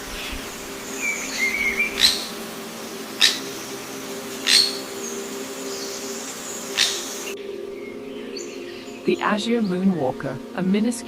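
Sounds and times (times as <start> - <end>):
bird giving sharp calls: 0.0 - 9.2.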